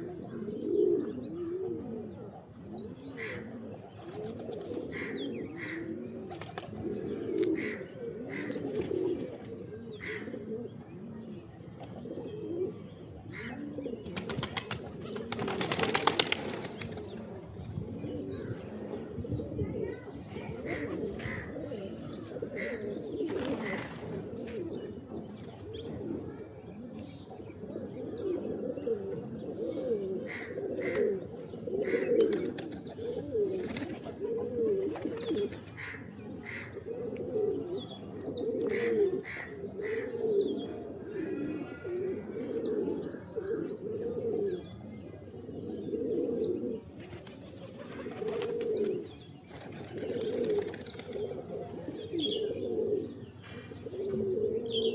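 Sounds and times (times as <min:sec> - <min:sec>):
pigeons cooing: 0:00.0 - 0:54.9.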